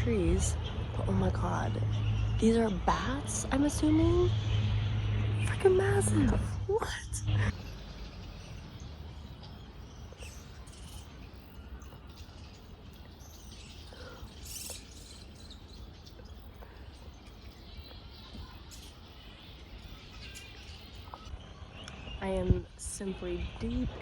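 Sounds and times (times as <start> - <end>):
steady low rumble: 0.0 - 24.0
fruit bats squeaking and chattering: 7.4 - 21.3.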